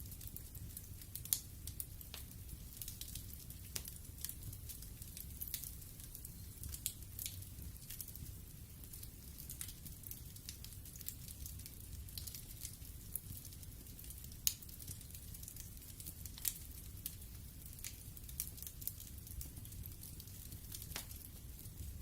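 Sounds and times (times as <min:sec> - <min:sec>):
burning wood crackling and popping: 0:00.0 - 0:22.0.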